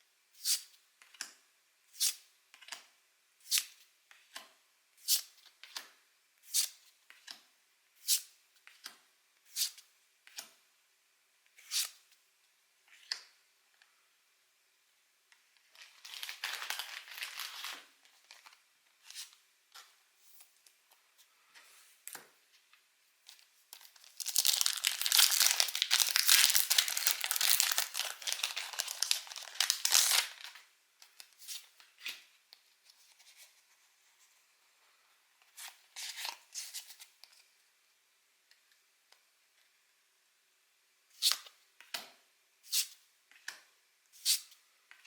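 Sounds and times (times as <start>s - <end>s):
foil wrappers crinkling and tearing: 15.7s - 18.6s, 23.8s - 30.6s.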